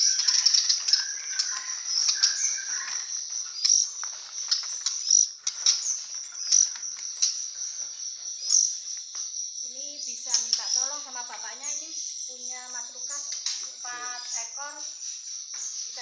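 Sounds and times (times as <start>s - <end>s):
wings fluttering: 0.0s - 7.7s
cricket trill: 0.0s - 16.0s
songbirds chirping: 0.0s - 16.0s.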